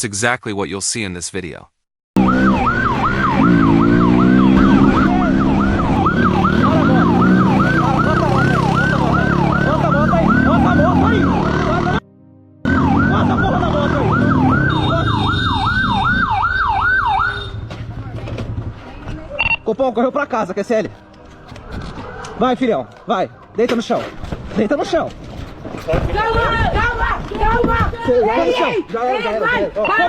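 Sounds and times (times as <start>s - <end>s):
engine revving: 2.2s - 12.0s, 12.6s - 16.4s
police siren yelping: 2.2s - 12.0s, 12.6s - 17.6s.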